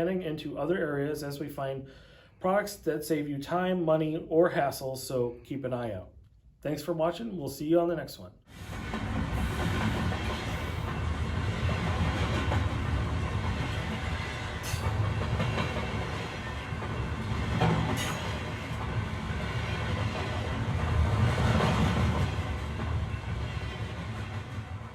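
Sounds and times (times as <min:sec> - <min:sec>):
model train rumbling on track: 0:08.5 - 0:24.9.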